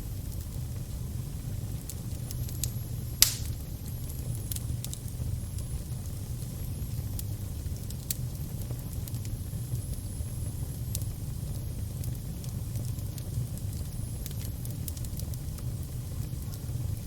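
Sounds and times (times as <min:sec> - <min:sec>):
fire crackling: 0:00.0 - 0:17.0
sharp pops of fire: 0:01.7 - 0:06.5.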